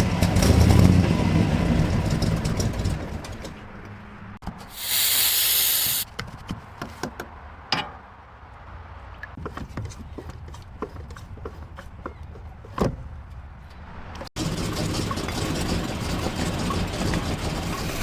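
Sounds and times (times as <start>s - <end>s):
short hiss of air: 4.7s - 6.1s.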